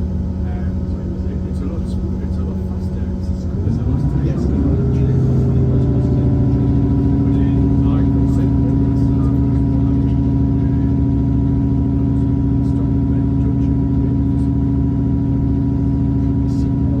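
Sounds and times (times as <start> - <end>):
diesel train engine humming: 0.0 - 17.0.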